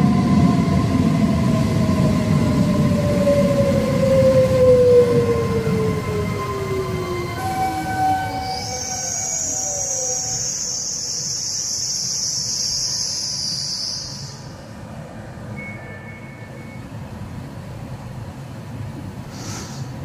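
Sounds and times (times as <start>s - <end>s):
standing train humming: 0.0s - 20.0s
train brakes squealing: 6.0s - 14.7s, 15.5s - 17.1s, 19.3s - 20.0s.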